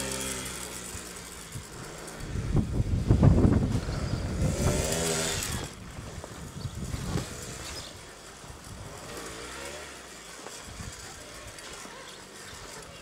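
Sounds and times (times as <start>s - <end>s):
quad bike engine revving: 0.0s - 13.0s.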